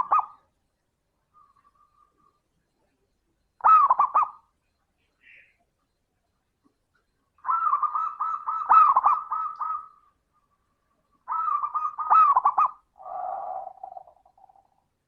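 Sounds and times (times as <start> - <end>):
dove cooing: 0.0 - 0.5, 3.6 - 4.5, 7.4 - 15.0.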